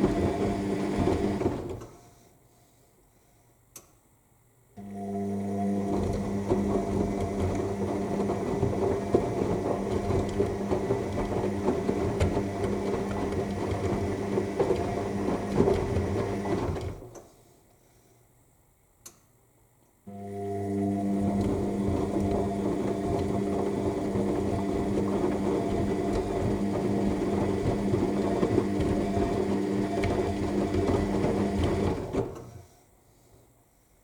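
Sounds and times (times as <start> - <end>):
washing machine drum tumbling: 6.0 - 17.0, 21.1 - 32.4.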